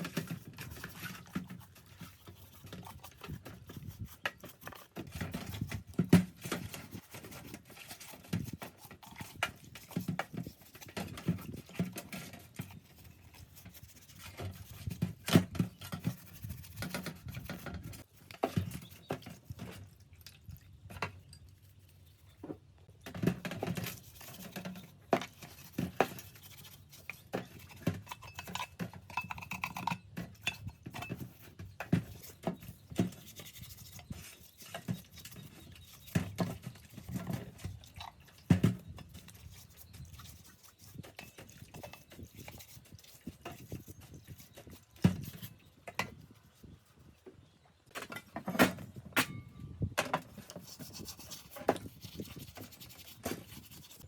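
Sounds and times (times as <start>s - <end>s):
tools and metal parts clinking: 27.7s - 31.4s.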